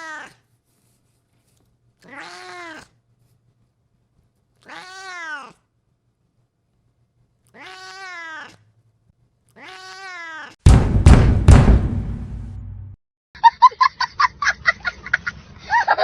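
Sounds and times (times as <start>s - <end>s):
kitten meowing: 2.0s - 2.9s, 4.6s - 5.6s, 7.5s - 8.6s, 9.6s - 10.6s
loud sudden hit: 10.7s - 13.0s.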